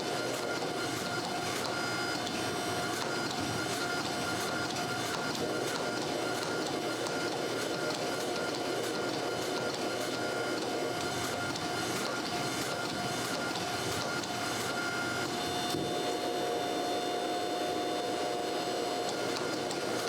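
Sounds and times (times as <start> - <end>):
machine whirring: 0.1 - 16.1.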